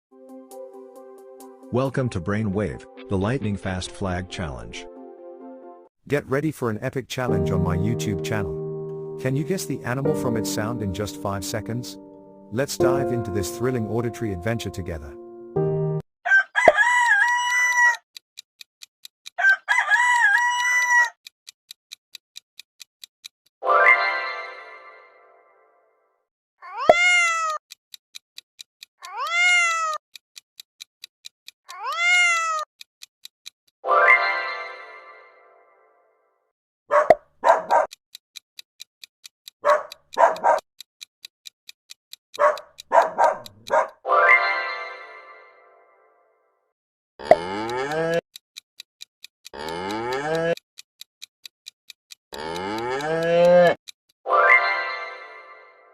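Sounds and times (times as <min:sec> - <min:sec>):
steady ticking: 0:06.5 - 0:15.3, 0:17.9 - 0:19.4, 0:21.2 - 0:23.6, 0:27.5 - 0:29.3, 0:29.9 - 0:31.9, 0:32.6 - 0:33.8, 0:36.9 - 0:44.0, 0:47.2 - 0:54.2
rooster crowing: 0:16.2 - 0:18.0, 0:19.4 - 0:21.1
dog barking: 0:36.9 - 0:38.0, 0:39.6 - 0:40.6, 0:42.4 - 0:44.0.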